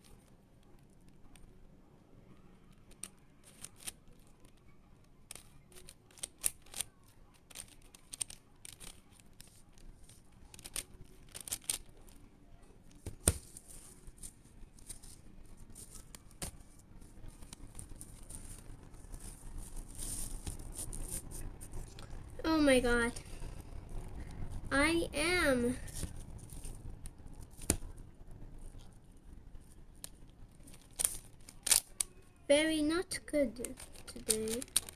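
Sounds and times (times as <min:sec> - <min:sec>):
puzzle cube clicking as twisted: 0:02.8 - 0:04.6, 0:05.3 - 0:12.2, 0:30.0 - 0:32.1, 0:33.6 - 0:34.9.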